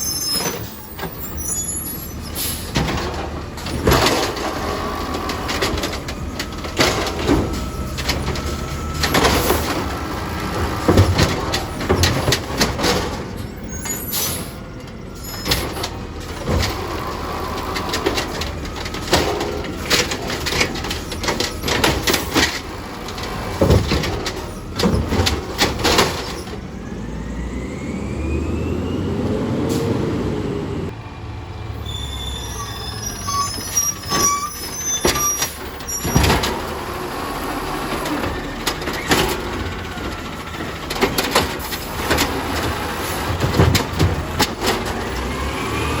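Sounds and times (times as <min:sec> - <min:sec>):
air brakes hissing: 0:00.0 - 0:02.8, 0:13.6 - 0:15.8
garbage truck engine running: 0:00.0 - 0:46.0
sharp knocks and bangs: 0:02.6 - 0:13.3, 0:37.9 - 0:45.4
rising engine whine: 0:26.6 - 0:32.6.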